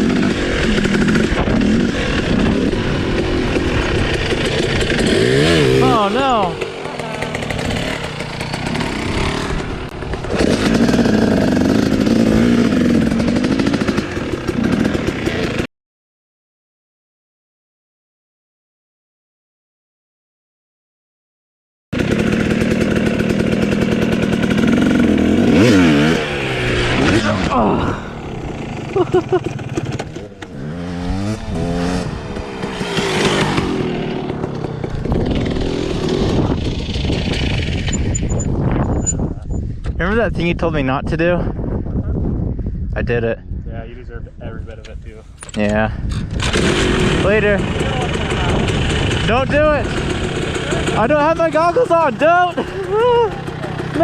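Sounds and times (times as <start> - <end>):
dirt bike engine revving: 0.0 - 15.7, 22.0 - 39.6, 46.1 - 54.0.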